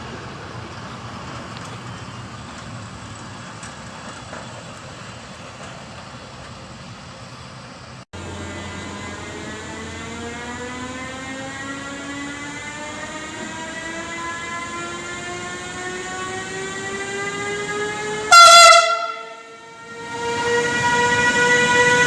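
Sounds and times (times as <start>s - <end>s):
electric train motors whining: 8.2s - 22.0s
train horn blast: 8.2s - 22.0s.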